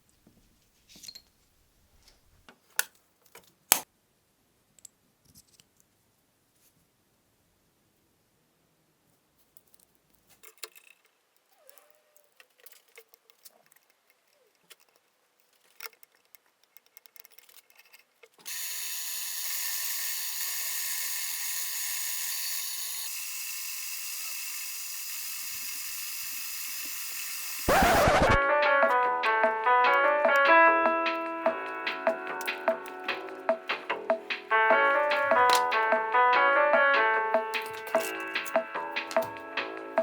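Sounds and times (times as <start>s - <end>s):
clicks of small metal parts: 9.6s - 11.1s, 11.7s - 18.5s, 35.4s - 35.7s, 37.6s - 39.4s
power tool whining: 18.5s - 28.4s.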